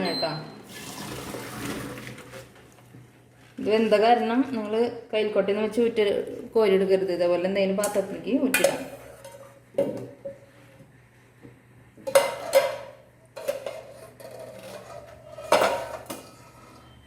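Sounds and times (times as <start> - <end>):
metal pot and utensils clattering: 7.8 - 10.4, 12.0 - 16.8.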